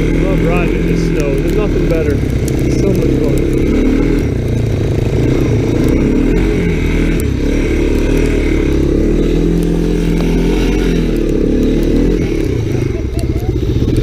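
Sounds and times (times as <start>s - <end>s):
engine revving while riding: 0.0s - 14.0s.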